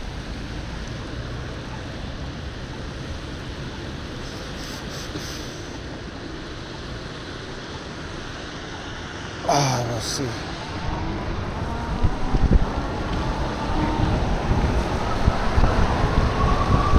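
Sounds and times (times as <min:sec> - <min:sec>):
road noise from bicycle: 0:00.0 - 0:16.9
wind rushing: 0:10.4 - 0:16.9.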